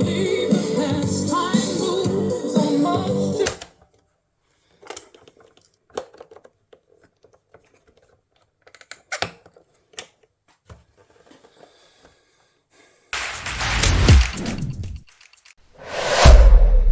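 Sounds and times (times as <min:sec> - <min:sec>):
loud whoosh: 0:15.8 - 0:16.9.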